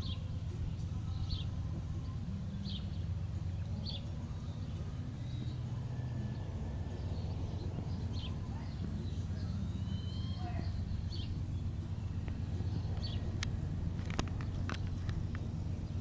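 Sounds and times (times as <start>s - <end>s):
bird chirping: 0.0s - 16.0s
steady low hum: 0.0s - 16.0s.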